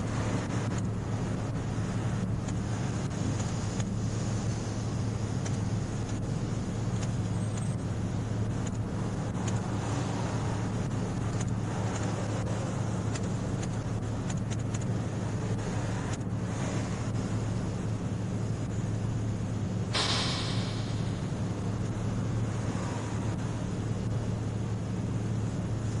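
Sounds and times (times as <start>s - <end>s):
car engine idling: 16.1s - 22.6s.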